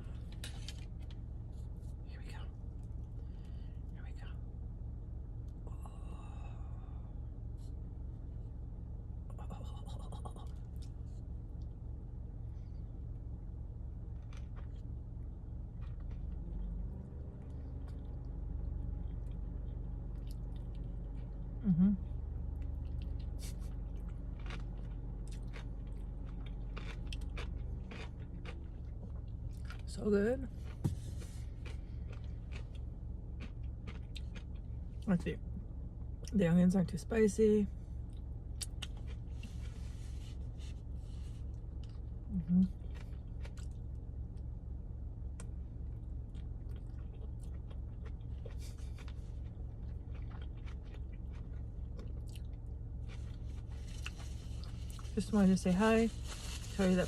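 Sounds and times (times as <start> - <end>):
steady low hum: 0.0 - 57.0
crunchy chewing and mouth smacks: 9.3 - 11.8, 14.0 - 21.6, 22.2 - 29.9, 30.5 - 35.1, 38.0 - 44.5, 45.2 - 55.2.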